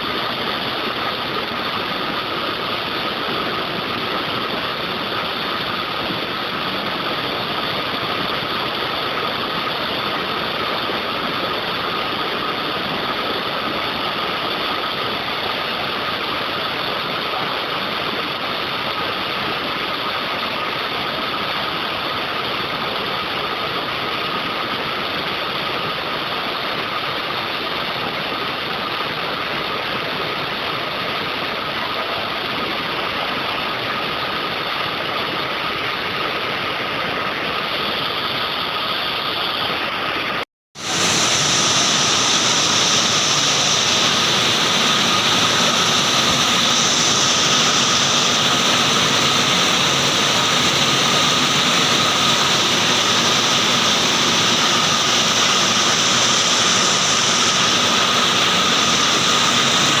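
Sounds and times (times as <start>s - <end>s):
heavy rain pouring: 0.0s - 24.0s, 24.6s - 60.0s.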